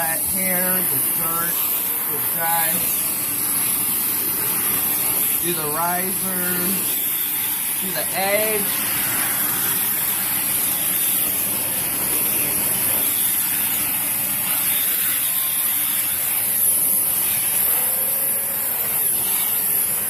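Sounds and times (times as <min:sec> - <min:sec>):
vacuum brushing carpet: 0:00.0 - 0:20.0
vacuum cleaner running: 0:00.0 - 0:20.0.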